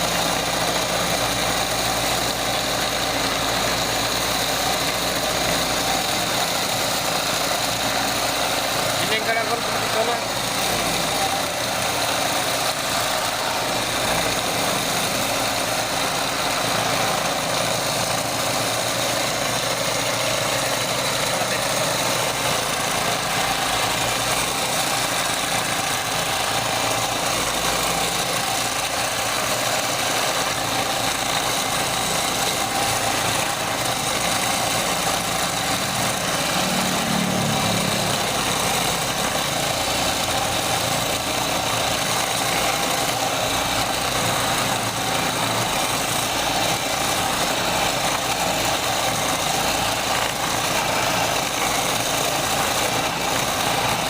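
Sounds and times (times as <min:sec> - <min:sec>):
electric motor humming: 0:00.0 - 0:54.0.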